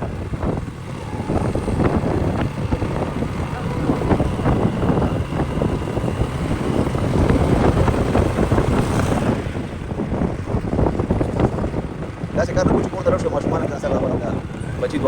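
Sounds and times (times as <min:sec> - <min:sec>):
motorcycle road noise: 0:00.0 - 0:15.0
wind buffeting microphone: 0:00.0 - 0:15.0.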